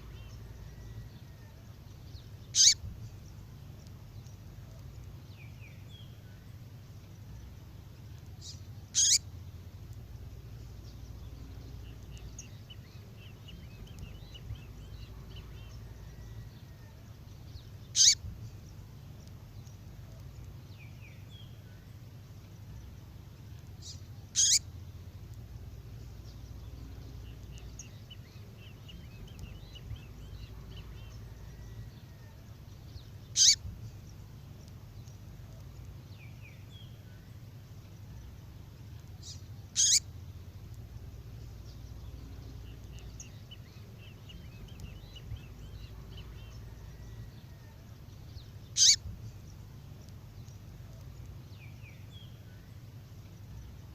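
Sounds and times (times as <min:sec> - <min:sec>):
faint bird twittering: 0:00.0 - 0:53.9
low steady hum: 0:00.0 - 0:53.9
sharp songbird calls: 0:02.4 - 0:03.0, 0:08.4 - 0:09.3, 0:17.6 - 0:18.7, 0:23.8 - 0:24.7, 0:33.1 - 0:34.0, 0:39.2 - 0:40.2, 0:48.4 - 0:49.2.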